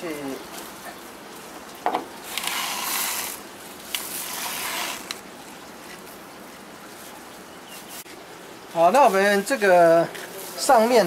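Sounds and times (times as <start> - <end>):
masking film pulled off roll: 2.2 - 6.2.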